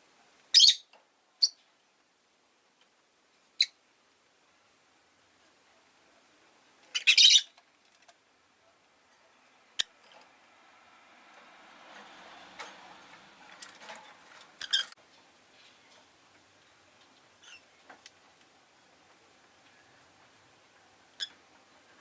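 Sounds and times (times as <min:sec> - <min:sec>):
faint background noise: 0:00.0 - 0:22.0
bird shrill calls: 0:00.5 - 0:01.6, 0:07.0 - 0:07.5.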